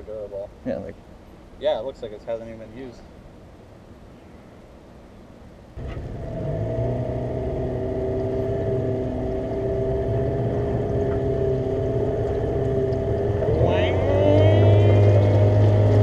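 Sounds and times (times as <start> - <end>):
boat motor running: 5.8 - 16.0.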